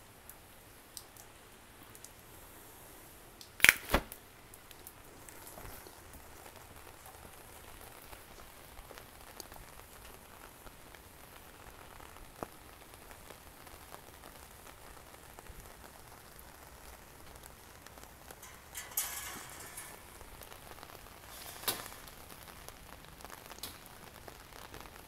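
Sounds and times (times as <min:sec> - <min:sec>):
steady rain hiss: 0:00.0 - 0:25.0
drip ticks: 0:01.0 - 0:02.2.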